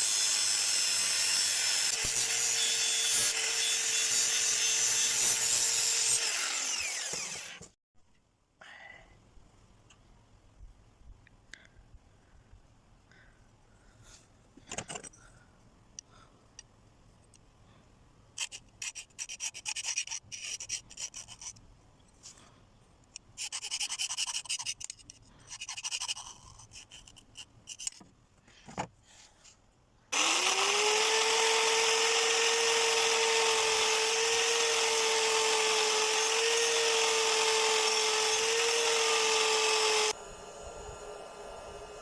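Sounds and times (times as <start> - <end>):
electric grinder motor whine: 5.8 - 7.7, 30.2 - 42.0.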